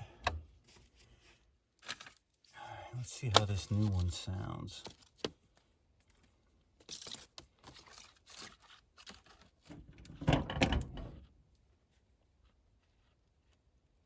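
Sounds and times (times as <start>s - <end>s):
rustling and light clicks: 4.8s - 10.1s.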